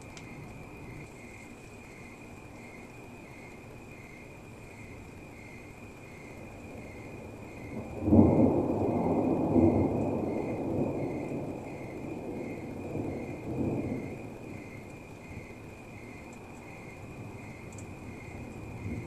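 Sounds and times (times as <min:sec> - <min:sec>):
rain falling: 0:00.0 - 0:19.0
thunder rumbling: 0:06.2 - 0:19.0.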